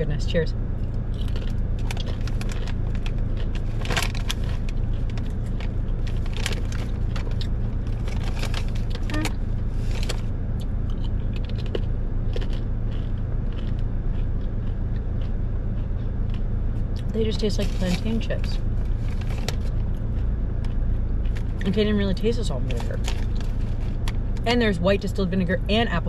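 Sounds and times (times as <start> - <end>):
steady low hum: 0.0 - 26.0
crunching and chewing chips: 0.7 - 24.4
chip bag crinkling: 1.2 - 10.2, 22.7 - 24.1.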